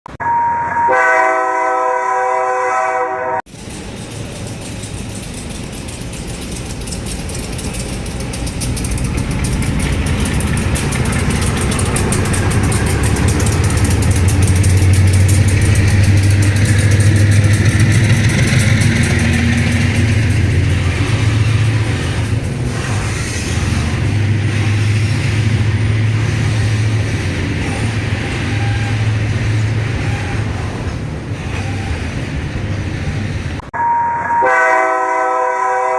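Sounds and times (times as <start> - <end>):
locomotive engine hum: 3.5 - 33.7
wheels rumbling on rail: 3.5 - 33.8
multi-chime horn chord: 33.8 - 35.9.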